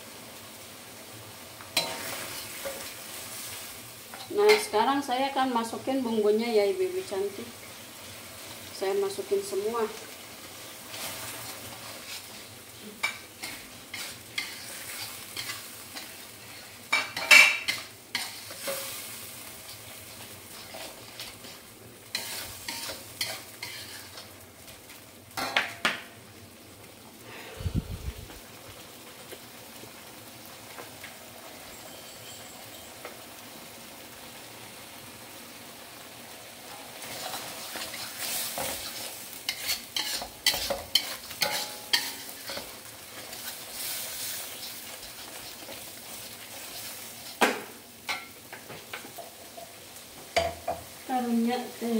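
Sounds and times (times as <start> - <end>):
paste sizzling in hot oil: 0.0 - 51.9
wooden spatula scraping wok: 10.8 - 24.8, 37.0 - 50.3.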